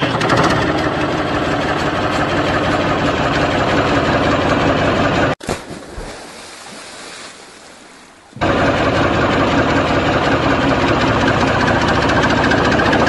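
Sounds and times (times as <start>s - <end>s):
motor engine running: 0.0s - 5.4s, 8.4s - 13.0s.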